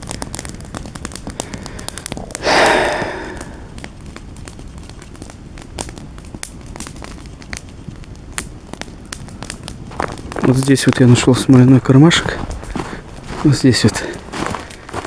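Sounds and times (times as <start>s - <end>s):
campfire crackling and popping: 0.0s - 15.0s
short rush of breathy noise: 2.4s - 3.6s.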